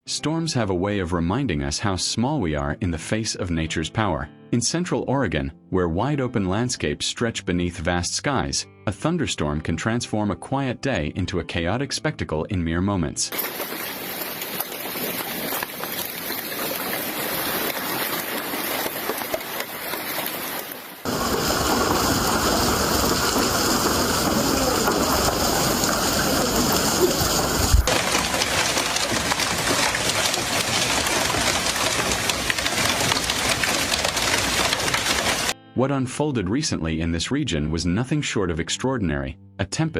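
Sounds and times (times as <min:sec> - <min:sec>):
hail and rain pelting down: 0:13.3 - 0:35.6.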